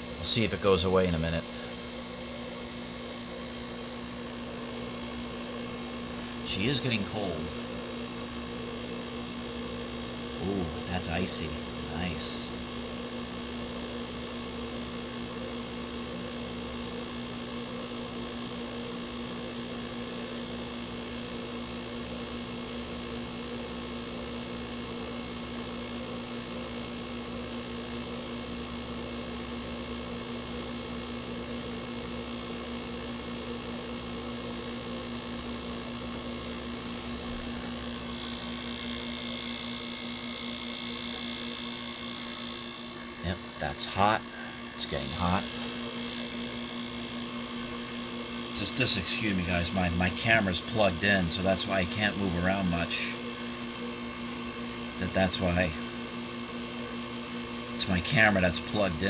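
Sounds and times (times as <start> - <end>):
air conditioner hiss: 0.0 - 15.2, 34.0 - 56.5, 57.2 - 59.0
air conditioner compressor hum: 0.0 - 59.0.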